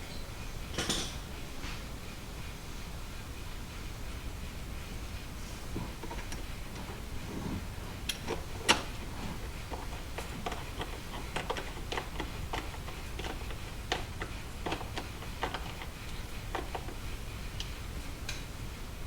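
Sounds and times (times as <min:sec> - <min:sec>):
hand tools clicking and tapping: 0:05.7 - 0:18.5.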